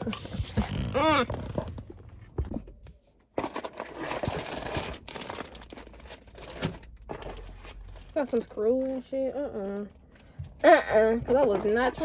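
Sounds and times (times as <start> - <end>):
plastic packaging crinkling: 3.4 - 9.9.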